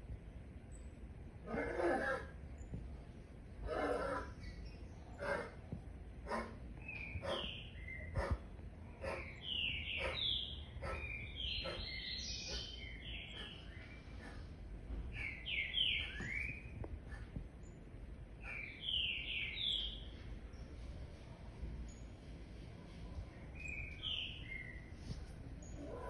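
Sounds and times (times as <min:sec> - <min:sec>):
bird chirping: 0:06.3 - 0:14.5, 0:15.1 - 0:20.8, 0:23.4 - 0:26.0.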